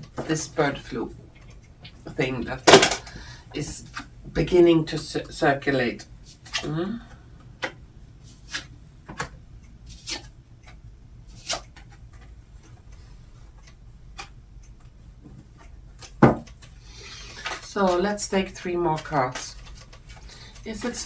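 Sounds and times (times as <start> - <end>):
cards being shuffled: 7.6 - 10.3, 11.3 - 12.3.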